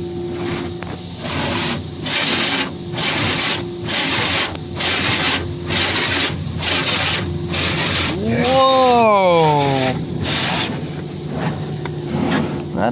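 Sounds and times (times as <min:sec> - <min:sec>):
machine hum: 0:00.0 - 0:12.9
water spraying in surges: 0:00.3 - 0:10.6.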